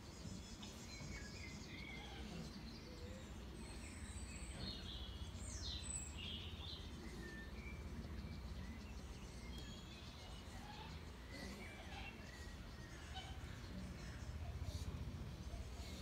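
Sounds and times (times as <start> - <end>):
birds chirping: 0.0 - 16.0
low background hum: 0.0 - 16.0.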